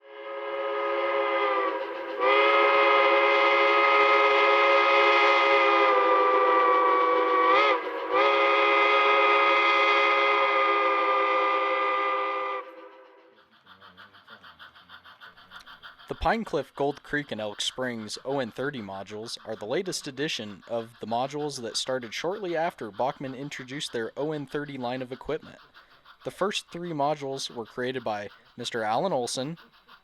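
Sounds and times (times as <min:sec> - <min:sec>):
steam locomotive chime whistle: 0:00.1 - 0:13.2.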